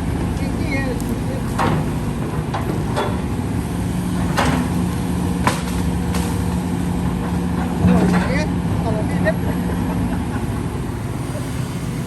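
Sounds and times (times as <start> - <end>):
heavy machine engine running: 0.0 - 12.0
sharp knocks and clanks: 1.4 - 8.5.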